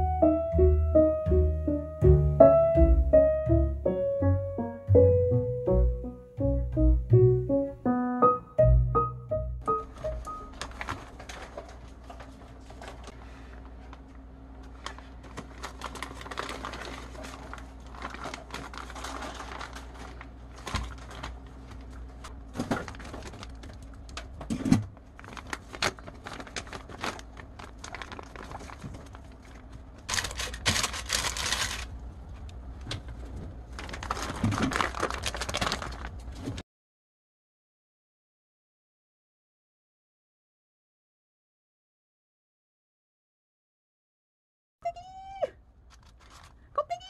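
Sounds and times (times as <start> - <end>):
crinkling: 9.7 - 36.6, 45.8 - 47.0.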